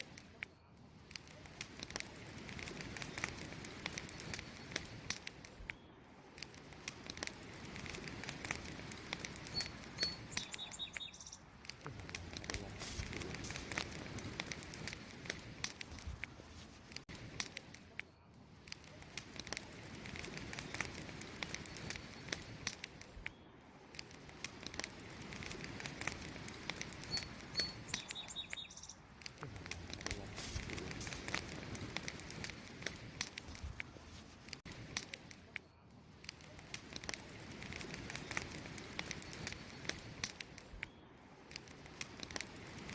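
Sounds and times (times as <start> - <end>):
campfire crackling: 0.0 - 42.9
bird chirps: 9.4 - 11.5, 27.0 - 29.1.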